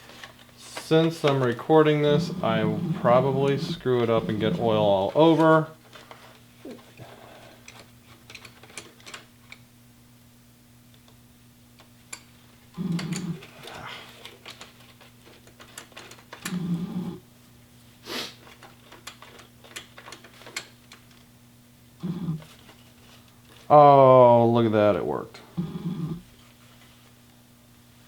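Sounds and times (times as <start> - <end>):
steady low hum: 0.1 - 8.2
short low vocal sounds: 1.8 - 5.2, 22.0 - 22.5.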